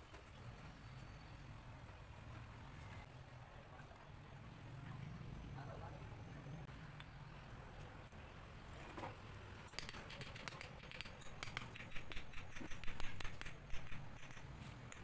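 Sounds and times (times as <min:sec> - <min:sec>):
hand tools clicking and snipping: 0:09.7 - 0:15.0.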